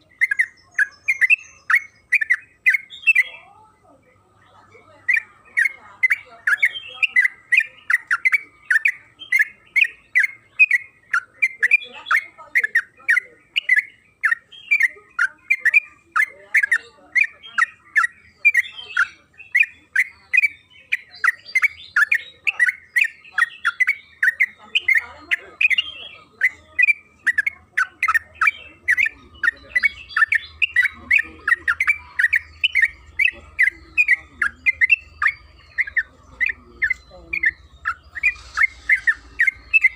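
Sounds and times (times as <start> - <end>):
bulbul chattering song: 0.0 - 39.9.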